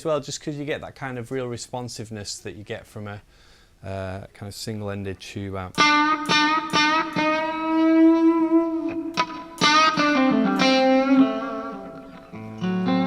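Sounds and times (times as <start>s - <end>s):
electric guitar picked notes: 5.8s - 13.0s.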